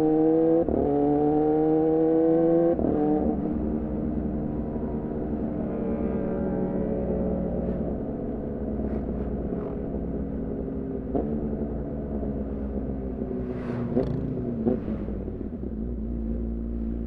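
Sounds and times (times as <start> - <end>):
motorcycle engine running: 13.8 - 17.0.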